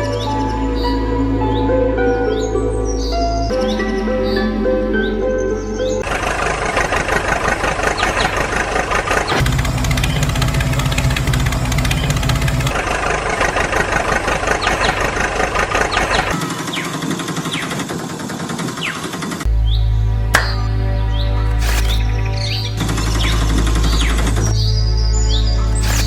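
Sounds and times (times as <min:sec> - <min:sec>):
small tractor engine running: 0:06.0 - 0:26.0.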